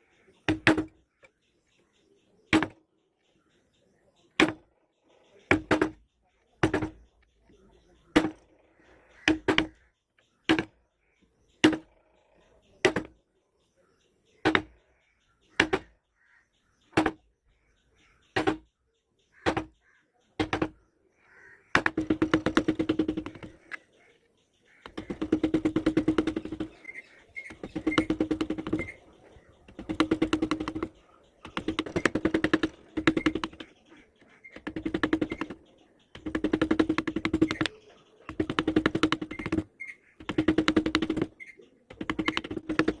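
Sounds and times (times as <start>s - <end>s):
mallet striking chisel into wood: 0.5s - 1.0s, 2.5s - 2.8s, 5.5s - 6.0s, 6.6s - 7.0s, 8.1s - 8.4s, 9.3s - 9.7s, 10.5s - 10.7s, 11.6s - 11.9s, 12.8s - 13.1s, 14.4s - 14.7s, 15.6s - 15.9s, 17.0s - 17.2s, 18.4s - 18.7s, 19.4s - 19.8s, 20.4s - 20.8s, 21.8s - 23.5s, 24.8s - 26.8s, 27.4s - 29.0s, 29.7s - 33.7s, 34.6s - 37.7s, 38.3s - 41.3s, 41.9s - 43.0s
rapid light taps: 21.8s - 23.9s, 24.7s - 43.0s.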